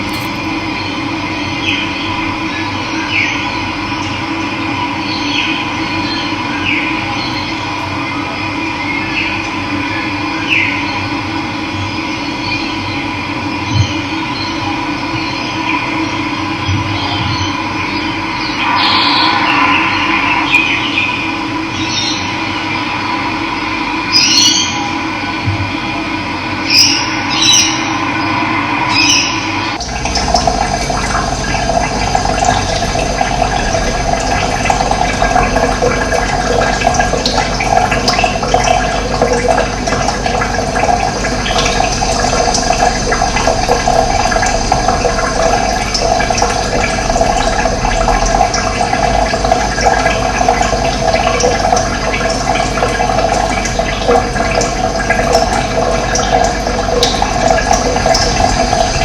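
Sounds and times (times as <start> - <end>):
running water rushing: 18.3 - 22.5, 26.7 - 59.0.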